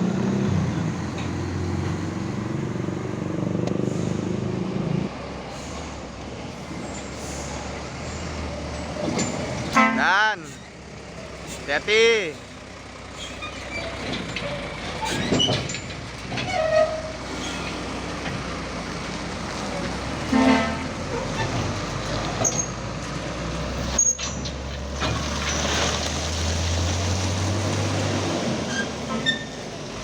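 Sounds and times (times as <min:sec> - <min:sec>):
truck diesel engine running: 0:00.0 - 0:25.4
truck horn toot: 0:09.7 - 0:10.4, 0:20.3 - 0:21.0.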